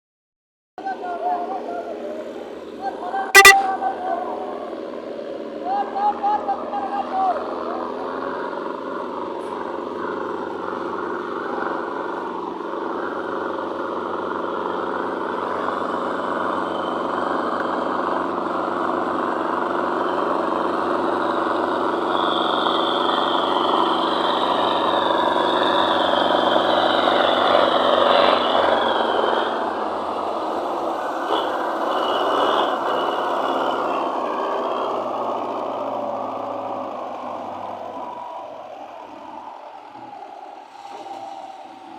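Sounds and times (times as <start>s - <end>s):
thin high whine: 3.4s - 3.7s.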